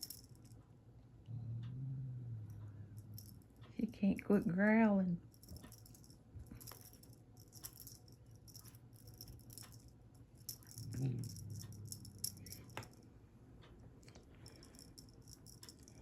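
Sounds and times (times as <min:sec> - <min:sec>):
cat toy rattling: 0:05.3 - 0:13.0, 0:14.4 - 0:16.0.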